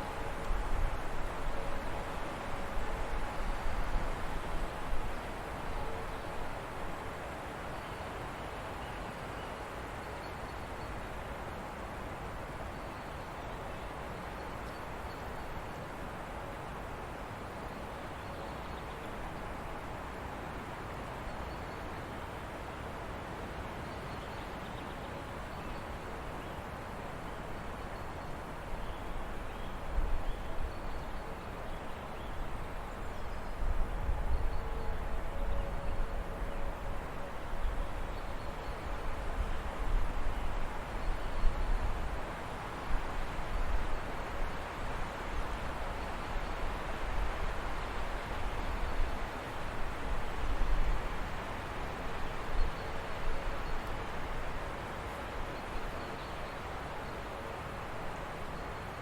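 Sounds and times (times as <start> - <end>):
stream flowing: 25.3 - 59.0.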